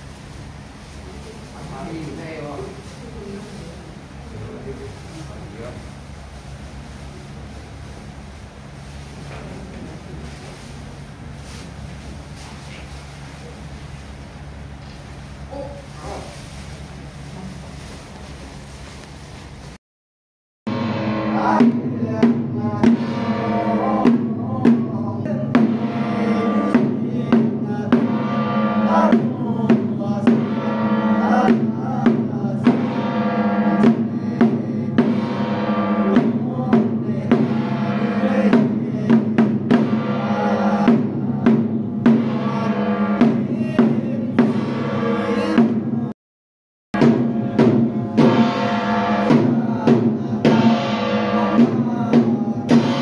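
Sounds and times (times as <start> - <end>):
drums and percussion beat: 20.7 - 46.1, 47.0 - 53.0.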